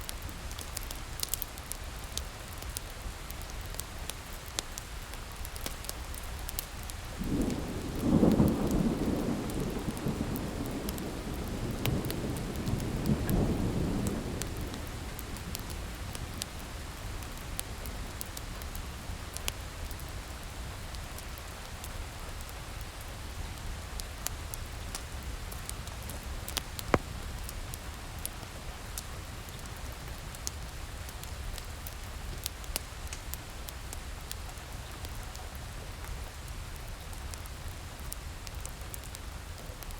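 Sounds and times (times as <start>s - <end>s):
steady rain: 0.0s - 39.9s
wood fire crackling: 0.0s - 39.9s
rolling thunder rumble: 7.2s - 18.3s.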